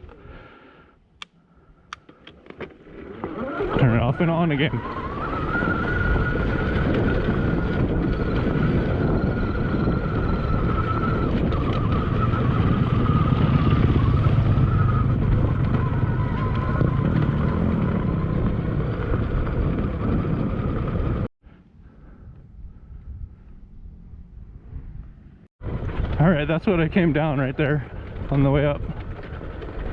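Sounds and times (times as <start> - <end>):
electric dirt bike motor whining: 2.8 - 21.2
wind buffeting on microphone: 3.4 - 29.9.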